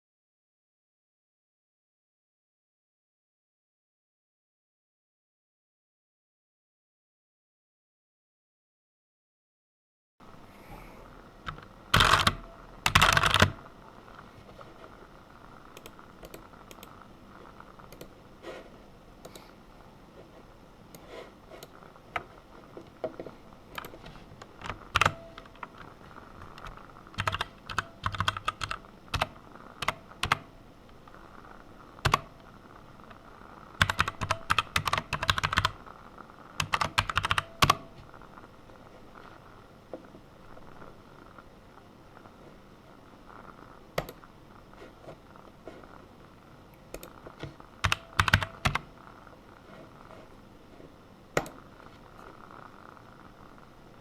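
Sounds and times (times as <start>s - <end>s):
typing on a keyboard: 11.5s - 13.6s, 24.6s - 25.8s, 26.4s - 30.5s, 33.8s - 35.8s, 36.6s - 37.9s, 47.8s - 48.9s.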